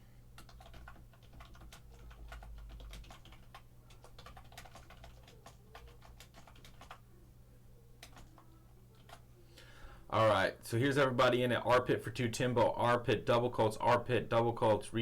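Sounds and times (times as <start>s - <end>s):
faint low hum: 0.0s - 15.0s
typing on computer keyboard: 0.4s - 7.0s, 8.0s - 9.2s.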